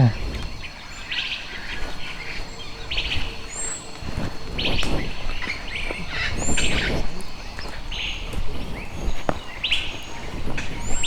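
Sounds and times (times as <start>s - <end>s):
low rustling noise: 0.0s - 11.0s.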